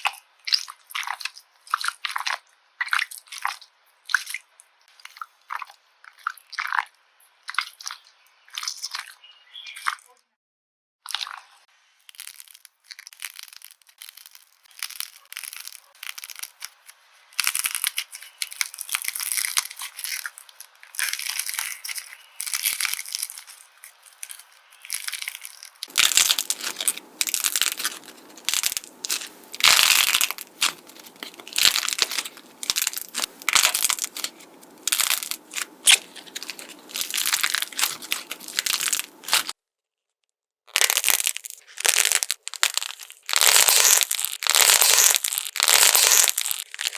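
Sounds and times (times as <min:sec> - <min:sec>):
slime crackling and popping: 0:12.1 - 0:39.5, 0:40.7 - 0:46.9.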